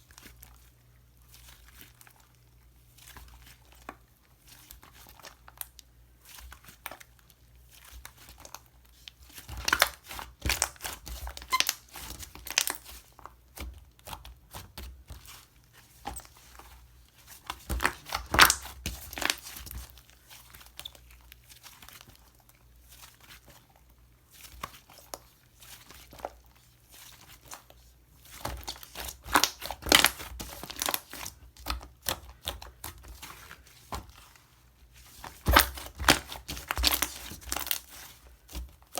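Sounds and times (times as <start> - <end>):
slime squished by hand: 17.3 - 23.5, 28.3 - 34.3, 35.1 - 38.9.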